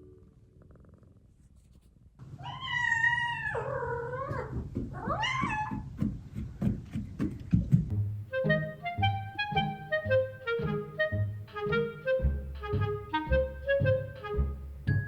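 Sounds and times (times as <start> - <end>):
cat meowing: 2.4 - 4.4
background music: 7.9 - 15.0.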